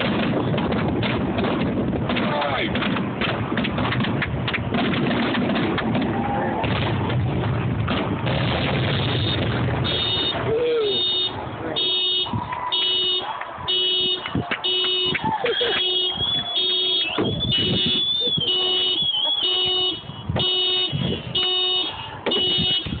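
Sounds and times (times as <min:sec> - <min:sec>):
car alarm beeping: 0:09.0 - 0:23.0.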